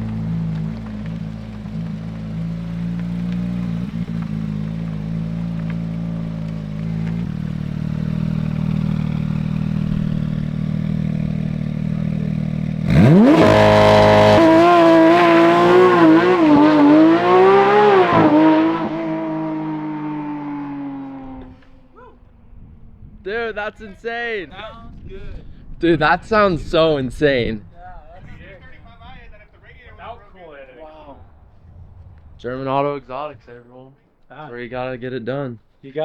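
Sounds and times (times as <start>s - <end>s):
sports car engine revving: 0.0s - 21.9s.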